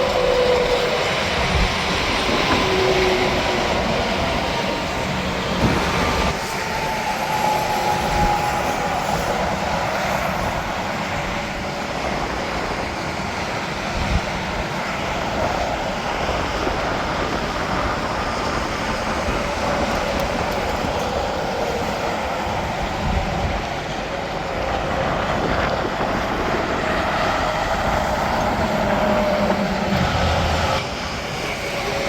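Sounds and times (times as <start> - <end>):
highway traffic passing: 27.4 - 32.0.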